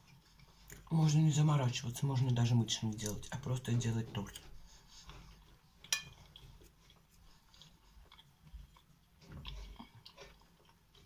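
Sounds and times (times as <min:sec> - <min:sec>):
person chewing cake: 0:00.0 - 0:00.9, 0:04.1 - 0:11.0.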